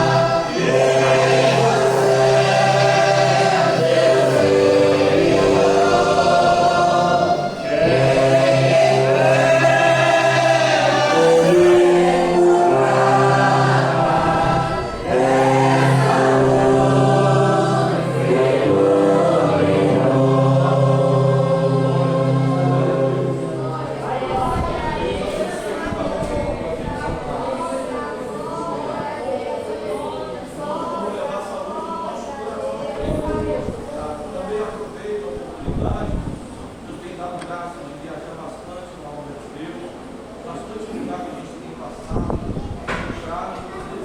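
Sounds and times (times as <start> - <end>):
church orchestra playing: 0.0 - 24.5
congregation singing a hymn: 0.0 - 44.0.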